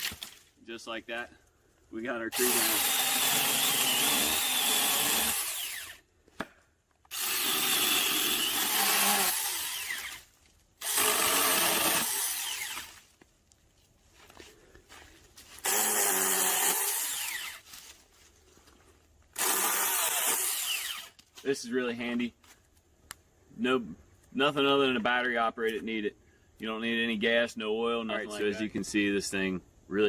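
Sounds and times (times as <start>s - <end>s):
mini chainsaw cutting branches: 2.3s - 6.0s, 7.1s - 13.0s, 15.6s - 17.7s, 19.4s - 21.2s.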